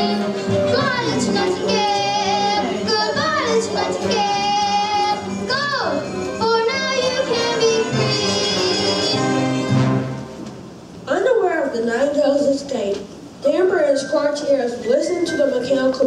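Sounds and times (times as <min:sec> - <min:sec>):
child singing: 0:00.0 - 0:09.3
musical accompaniment: 0:00.0 - 0:10.9, 0:13.7 - 0:16.0.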